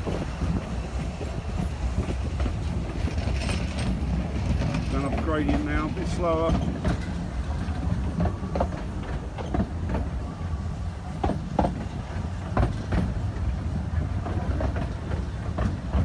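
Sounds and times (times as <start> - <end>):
carriage wheels rumbling: 0.0 - 10.3
clacks over rail joints: 0.0 - 16.0.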